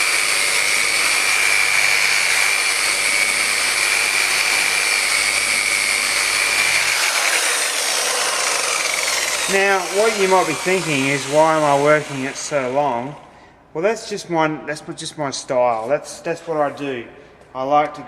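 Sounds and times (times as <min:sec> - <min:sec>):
orbital polisher whining: 0:00.0 - 0:13.3.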